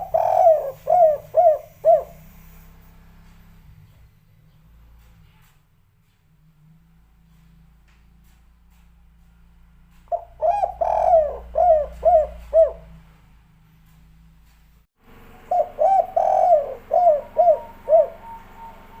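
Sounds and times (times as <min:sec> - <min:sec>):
dove cooing: 0:00.0 - 0:02.6, 0:10.1 - 0:13.1, 0:15.3 - 0:19.0.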